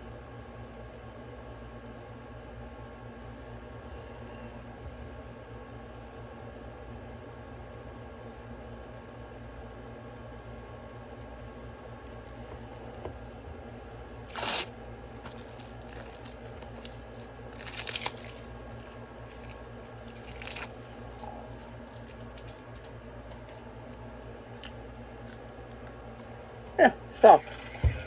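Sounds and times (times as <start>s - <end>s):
steady low hum: 0.0s - 28.0s
plastic wrapper tearing and crinkling: 14.2s - 18.5s, 19.2s - 20.9s.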